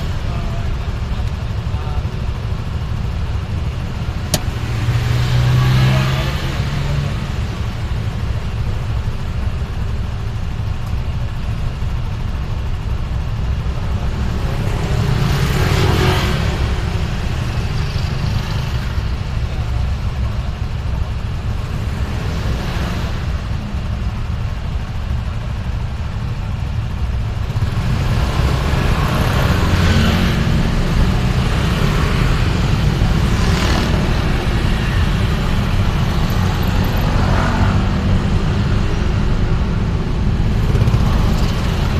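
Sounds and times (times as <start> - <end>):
road traffic rumble: 0.0 - 41.9
vehicles passing: 0.0 - 41.9.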